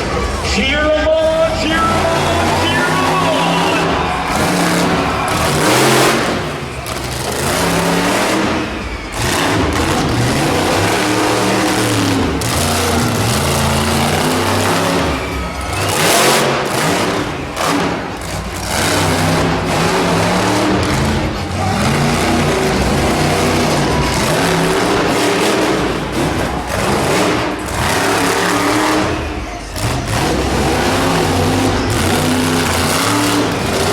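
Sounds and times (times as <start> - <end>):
monster truck engine revving: 0.0 - 33.9
loud rushing bursts: 0.6 - 18.2.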